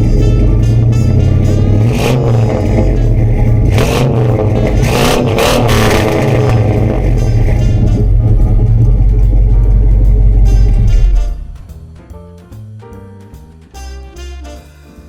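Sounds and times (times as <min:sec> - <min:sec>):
engine running and revving: 0:00.0 - 0:11.6.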